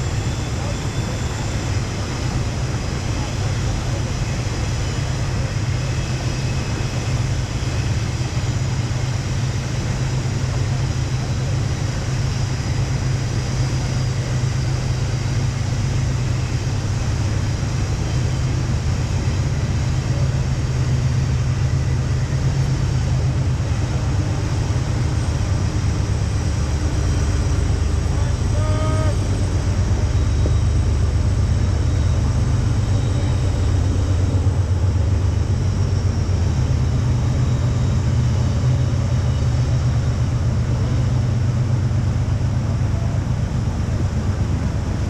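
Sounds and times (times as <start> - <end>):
river rapids roaring: 12.8 - 36.5.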